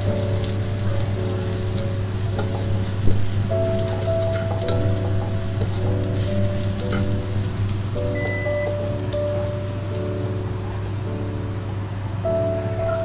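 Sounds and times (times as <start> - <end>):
garlic sizzling in hot oil: 0.0 - 13.0
spatula stirring in wok: 1.1 - 7.8.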